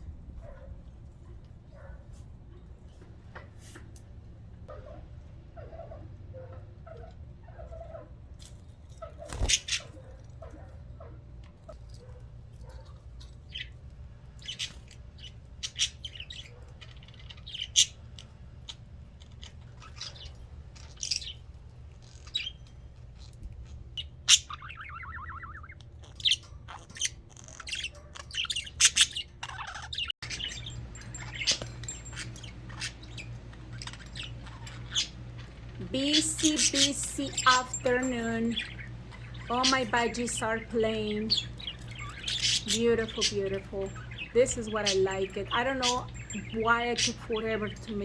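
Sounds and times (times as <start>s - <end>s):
budgerigars chirping and chattering: 9.0s - 10.0s, 12.7s - 23.4s, 24.0s - 48.0s
warbled bird trill: 9.0s - 10.1s, 24.0s - 48.0s
steady low hum: 30.2s - 48.0s.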